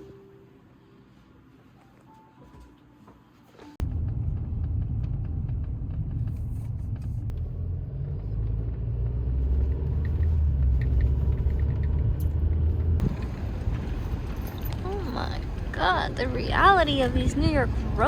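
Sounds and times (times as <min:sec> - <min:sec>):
road rumble inside car: 0:03.8 - 0:18.0.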